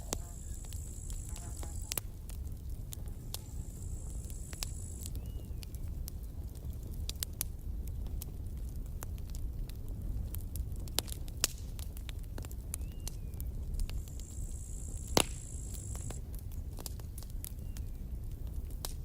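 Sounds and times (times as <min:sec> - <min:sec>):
campfire crackling and popping: 0:00.0 - 0:19.0
high hiss: 0:14.0 - 0:16.2.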